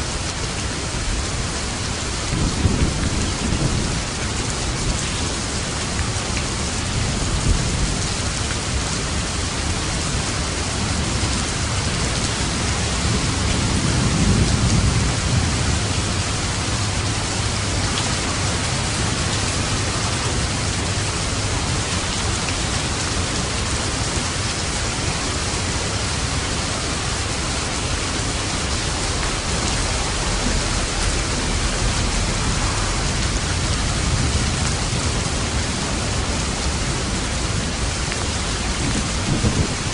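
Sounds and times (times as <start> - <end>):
heavy rain falling: 0.0 - 39.9
distant thunder rolling: 12.8 - 22.0, 27.2 - 39.9.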